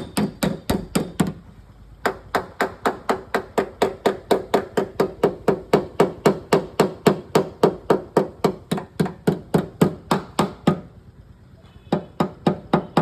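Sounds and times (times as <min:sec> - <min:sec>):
hammer tapping sheet metal: 0:00.0 - 0:01.4, 0:02.0 - 0:10.9.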